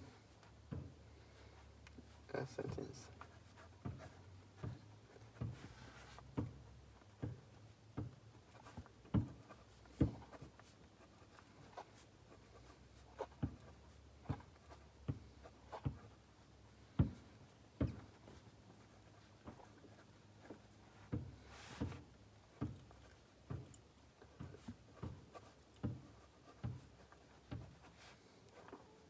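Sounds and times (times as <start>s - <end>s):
light clicks and taps: 16.9s - 29.0s.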